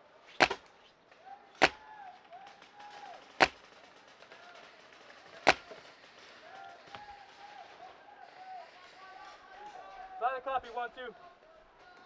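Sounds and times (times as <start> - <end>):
paintball marker shots: 0.3 - 0.7, 1.6 - 1.8, 3.4 - 3.7, 5.4 - 5.8.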